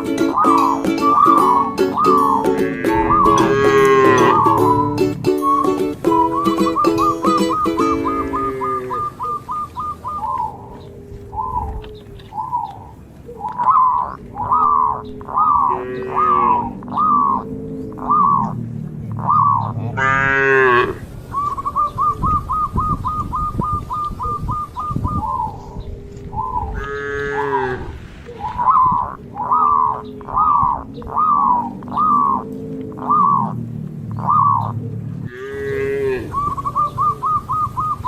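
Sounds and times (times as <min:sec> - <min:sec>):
cattle mooing: 0:02.0 - 0:05.1, 0:07.3 - 0:09.3, 0:14.6 - 0:21.1, 0:26.8 - 0:28.0, 0:35.2 - 0:36.6.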